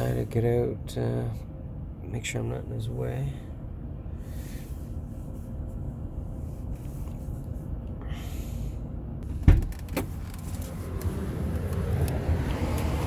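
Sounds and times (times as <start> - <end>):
low rumble inside van: 0.0 - 13.0
van door clunking open: 9.2 - 10.4.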